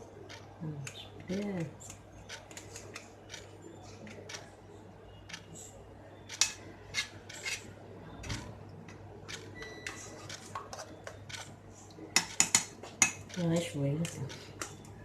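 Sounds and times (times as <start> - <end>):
spoon scraping a cooking pot: 6.3 - 7.8, 10.0 - 13.4.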